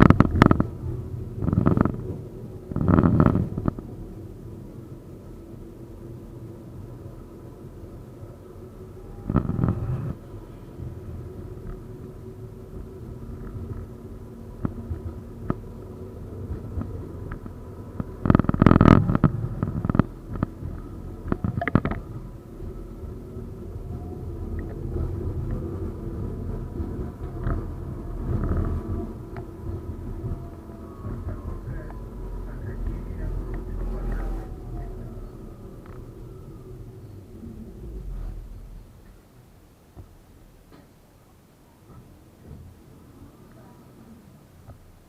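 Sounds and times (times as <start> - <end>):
faint steady whine: 0.0 - 45.0
tram rolling on rails: 0.0 - 45.0.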